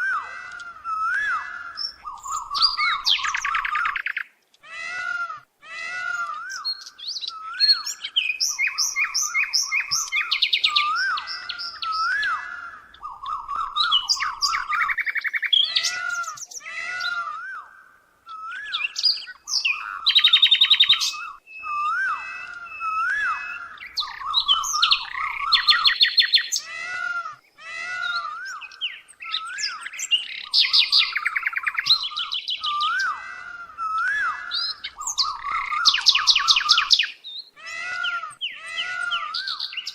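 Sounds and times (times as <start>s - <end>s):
birds chirping and calling: 0.0s - 39.9s.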